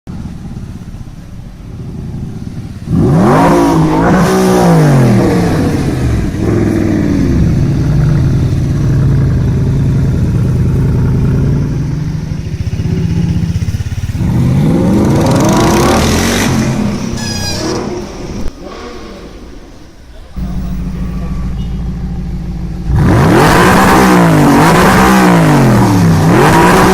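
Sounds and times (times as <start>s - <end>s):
sports car engine revving: 1.6s - 26.9s.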